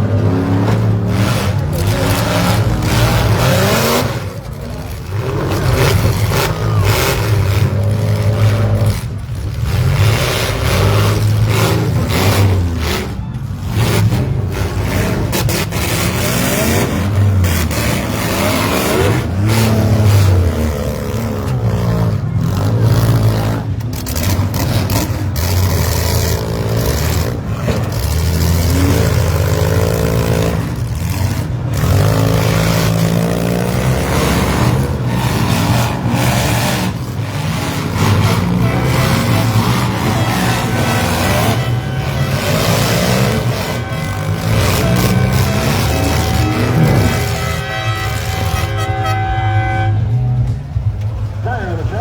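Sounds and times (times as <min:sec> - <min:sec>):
vehicle engines revving: 0:00.0 - 0:52.0
vehicles crashing together: 0:00.0 - 0:52.0.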